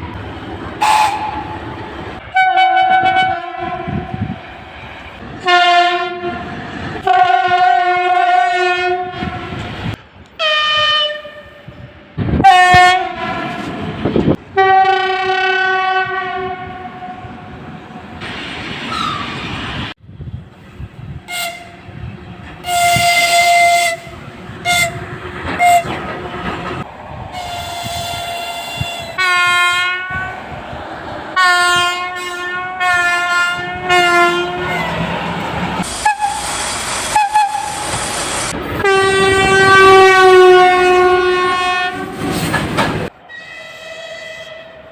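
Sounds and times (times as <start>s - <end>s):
moving train rumble and clatter: 0.0s - 44.9s
locomotive horn blasts: 0.8s - 1.5s, 2.3s - 4.2s, 5.4s - 9.6s, 12.4s - 13.7s, 14.6s - 17.2s, 21.3s - 21.8s, 22.6s - 25.0s, 25.6s - 25.9s, 27.4s - 30.3s, 31.4s - 34.8s, 37.1s - 37.8s, 38.8s - 42.2s.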